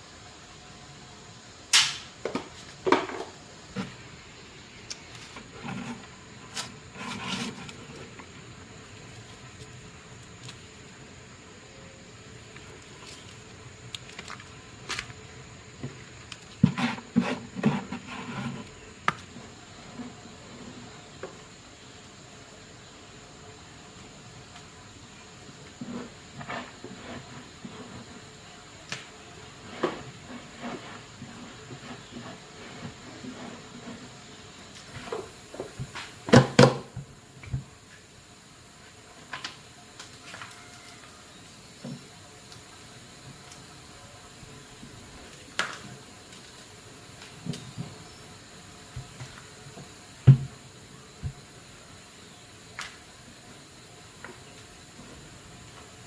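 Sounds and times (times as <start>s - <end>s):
sharp click: 1.7s - 2.1s
objects knocking and clattering: 2.2s - 4.0s.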